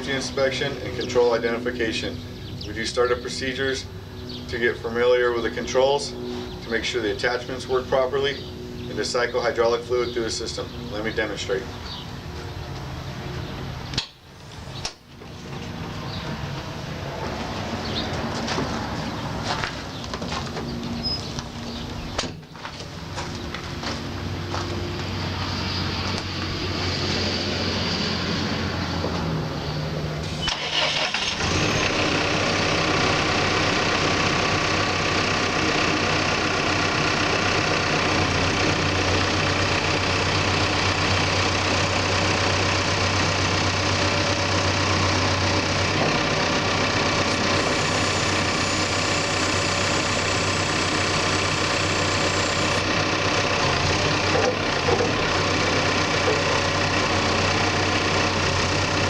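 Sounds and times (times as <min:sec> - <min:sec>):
diesel engine starting and idling: 0:00.0 - 0:59.0.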